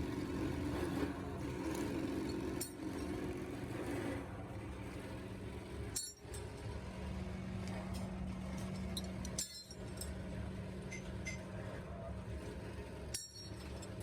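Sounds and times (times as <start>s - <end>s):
steady machine hum: 0.0s - 14.0s
metallic clinks: 8.8s - 10.2s.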